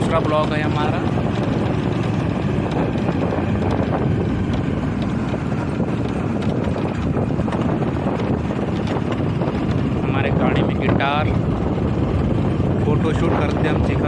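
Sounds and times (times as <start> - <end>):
small knocks and rattles: 0.0 - 10.1
motorbike road and wind noise: 0.0 - 14.0.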